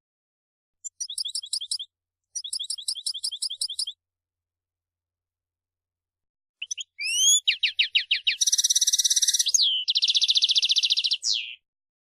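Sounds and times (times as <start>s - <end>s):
finch singing: 0.8s - 4.0s, 6.6s - 11.6s.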